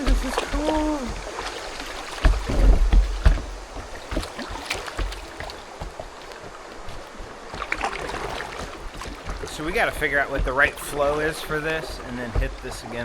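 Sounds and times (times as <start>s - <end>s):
paddle strokes: 0.0s - 13.0s
water splashing: 0.0s - 13.0s
heavy low thuds: 2.1s - 6.1s.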